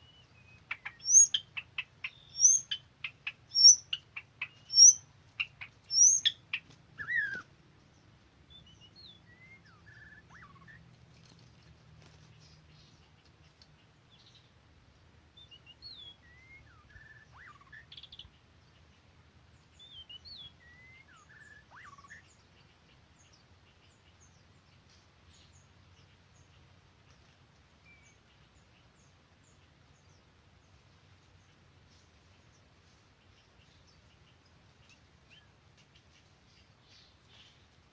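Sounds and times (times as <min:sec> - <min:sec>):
faint high bird chirps: 0:00.0 - 0:07.5, 0:08.5 - 0:10.9, 0:15.4 - 0:18.9, 0:19.6 - 0:30.7
songbird whistling: 0:00.0 - 0:07.5, 0:08.5 - 0:10.8, 0:15.4 - 0:18.3, 0:19.8 - 0:22.3.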